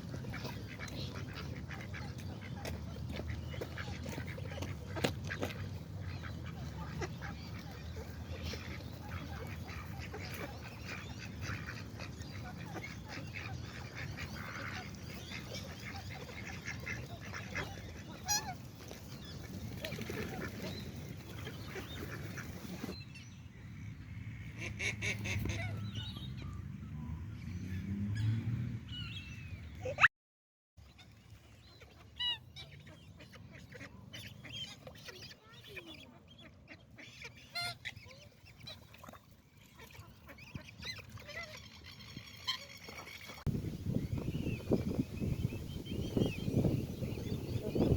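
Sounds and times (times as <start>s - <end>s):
waterfowl flock calling: 0.0s - 18.7s
wetland birds calling: 0.0s - 23.0s, 30.8s - 47.9s.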